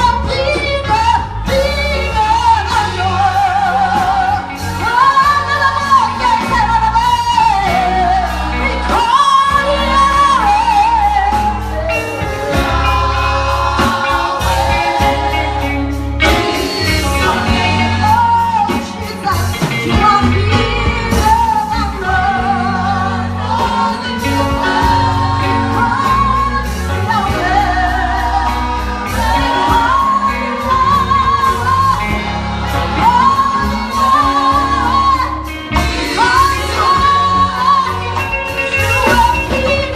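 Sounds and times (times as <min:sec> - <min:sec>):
band with bass and beat: 0:00.0 - 0:39.9
voices singing gospel song: 0:00.0 - 0:39.9.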